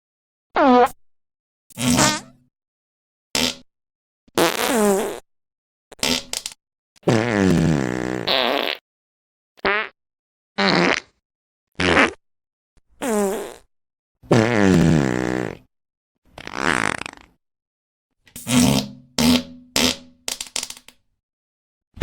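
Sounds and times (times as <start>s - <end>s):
fart sound effects: 0.6s - 1.0s, 1.7s - 2.4s, 3.4s - 3.7s, 4.4s - 5.2s, 5.9s - 8.8s, 10.6s - 11.2s, 11.8s - 12.2s, 13.0s - 13.7s, 14.3s - 15.7s, 16.4s - 17.4s, 18.4s - 20.8s.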